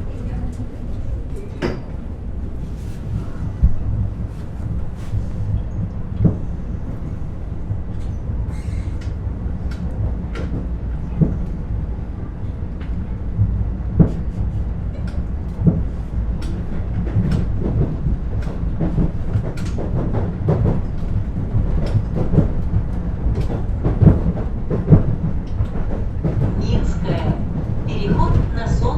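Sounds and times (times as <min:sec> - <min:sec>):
train running rumble: 0:00.0 - 0:28.9
train wheels clicking: 0:07.9 - 0:28.9.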